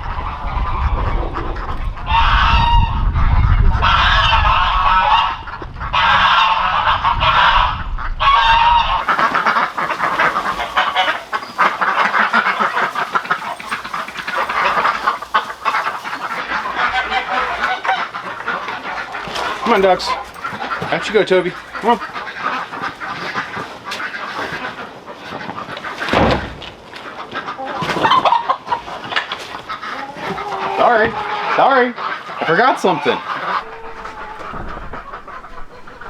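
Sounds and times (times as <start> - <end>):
geese honking: 8.8 - 25.9, 27.2 - 36.0
ducks calling: 8.9 - 26.1, 27.0 - 36.0.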